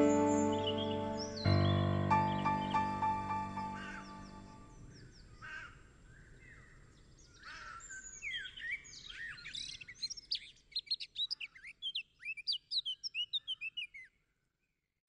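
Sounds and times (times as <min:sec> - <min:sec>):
songbirds chirping: 0:00.0 - 0:05.4.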